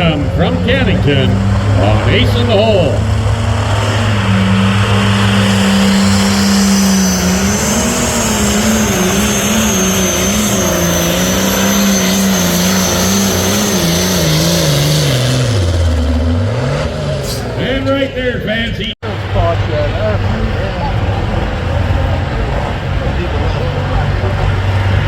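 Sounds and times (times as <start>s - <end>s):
tractor diesel engine running flat out: 0.0s - 25.0s
high turbo whistle: 3.5s - 16.0s.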